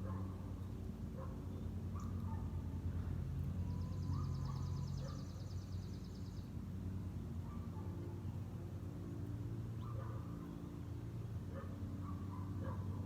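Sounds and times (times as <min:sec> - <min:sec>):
songbird trill: 0:03.4 - 0:06.7.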